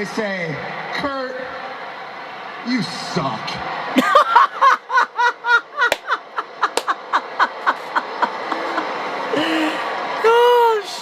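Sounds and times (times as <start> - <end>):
man laughing hard: 4.0 - 9.8.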